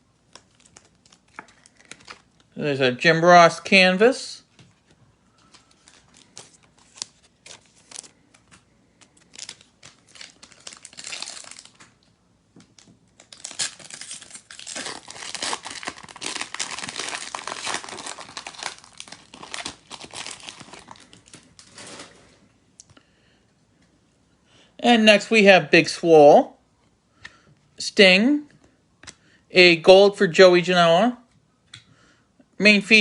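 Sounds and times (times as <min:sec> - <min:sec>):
wrapper crinkling and tearing: 0:00.3 - 0:02.5, 0:05.4 - 0:12.1, 0:12.7 - 0:22.3.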